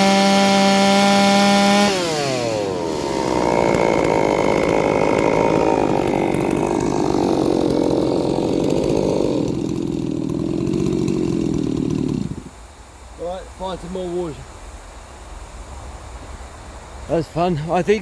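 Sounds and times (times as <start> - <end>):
chainsaw cutting wood: 0.0 - 12.6.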